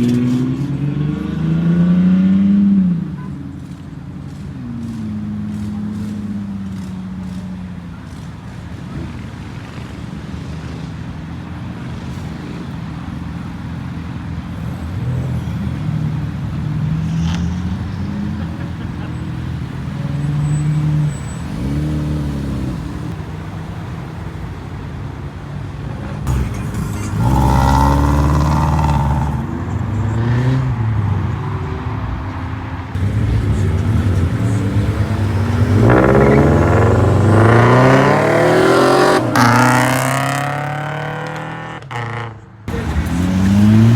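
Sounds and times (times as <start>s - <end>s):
car engines idling and revving: 0.0s - 43.9s
car accelerating hard: 11.8s - 23.7s, 26.2s - 30.8s, 33.0s - 43.9s.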